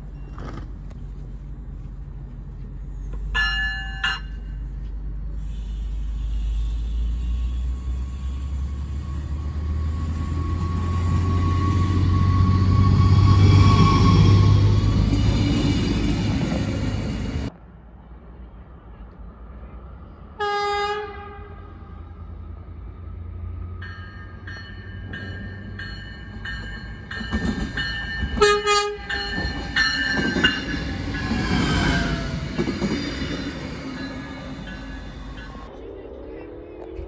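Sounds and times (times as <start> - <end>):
train pulling away: 0.0 - 17.5, 22.2 - 37.0
train passing rumble: 0.0 - 37.0
train bell ringing: 2.9 - 4.9, 23.7 - 35.8
train horn blast: 5.4 - 9.8, 20.4 - 22.0, 28.4 - 29.2.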